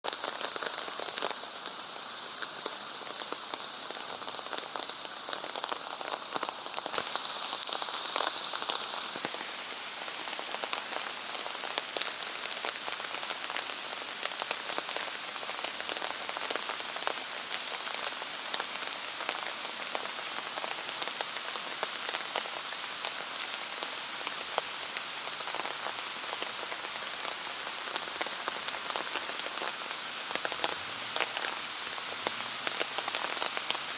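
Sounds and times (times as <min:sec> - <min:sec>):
rain on pavement and puddles: 0:00.0 - 0:33.9.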